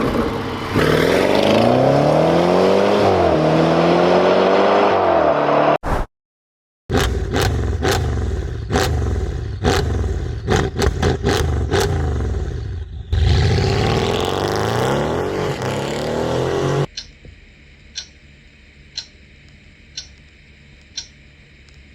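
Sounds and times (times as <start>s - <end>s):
sports car engine revving: 0.0s - 5.8s, 6.9s - 16.9s
exhaust cracks: 6.9s - 17.0s.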